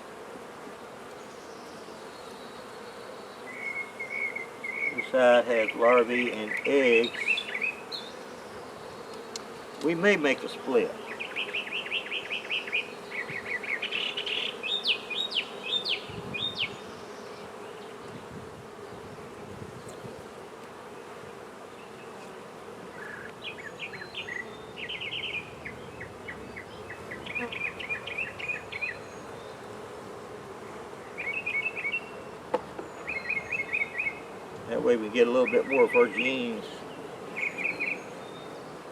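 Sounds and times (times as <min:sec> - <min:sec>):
honey bees humming: 0:00.0 - 0:38.9
bird singing trilled notes: 0:01.2 - 0:09.4, 0:11.0 - 0:18.1, 0:23.0 - 0:29.7, 0:31.0 - 0:34.3, 0:34.9 - 0:38.8.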